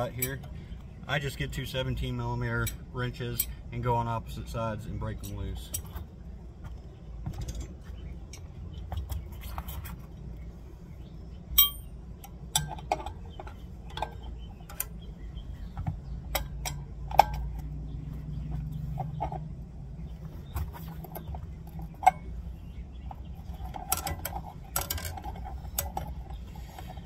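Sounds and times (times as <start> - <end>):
wrenches clinking on nuts: 0.0 - 0.6, 11.5 - 15.0, 23.4 - 27.0
sharp ringing clink: 11.5 - 12.0
metal taps: 11.5 - 19.4.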